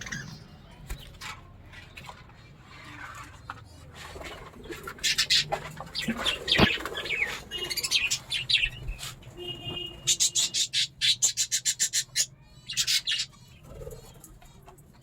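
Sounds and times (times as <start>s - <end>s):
budgerigars chirping: 5.0s - 13.6s.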